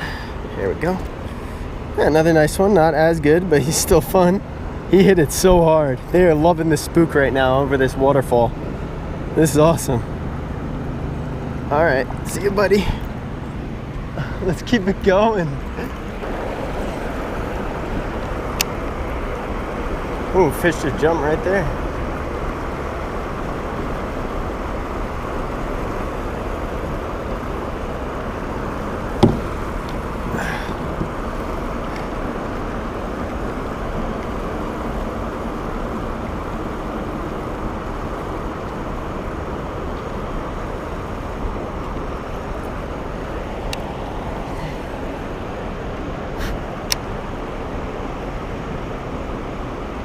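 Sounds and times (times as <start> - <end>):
small waterfall rushing: 8.5 - 50.0
sharp knock: 29.2 - 29.6.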